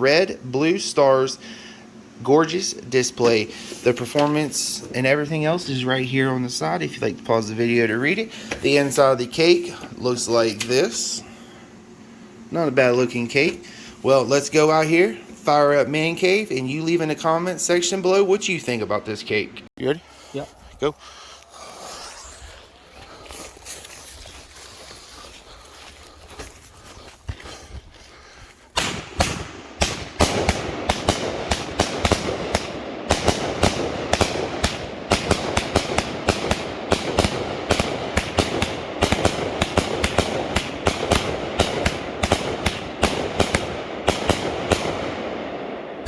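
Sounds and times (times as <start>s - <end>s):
fuse hissing: 0.0s - 15.3s
firework air bursts: 0.6s - 4.8s, 28.6s - 45.6s
firework shots launching: 28.7s - 46.0s.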